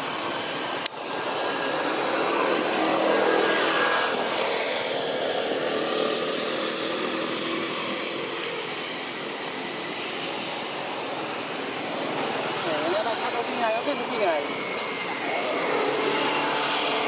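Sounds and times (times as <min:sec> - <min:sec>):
motor vehicle passing: 0:01.2 - 0:08.5.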